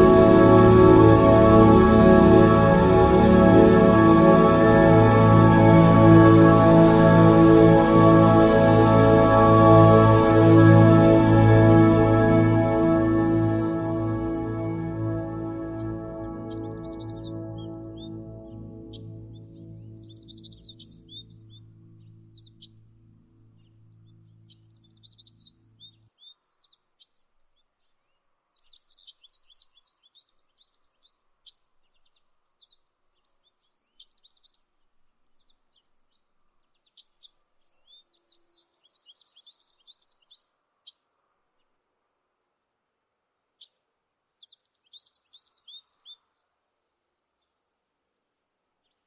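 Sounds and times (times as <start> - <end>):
soft low music: 0.0 - 26.2
songbird chirping: 0.0 - 47.9, 48.7 - 49.0.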